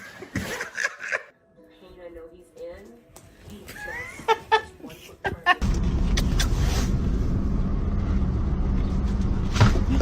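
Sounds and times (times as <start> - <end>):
steady low rumble: 5.6 - 10.0.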